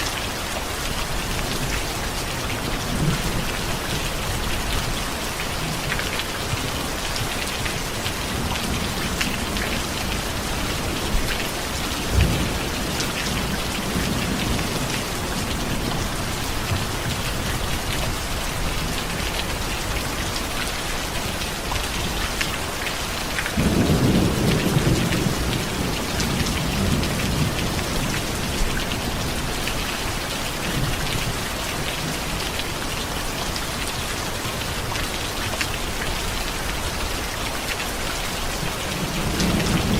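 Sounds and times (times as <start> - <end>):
heavy rain: 0.0 - 39.9
thunder rumble: 23.6 - 29.5.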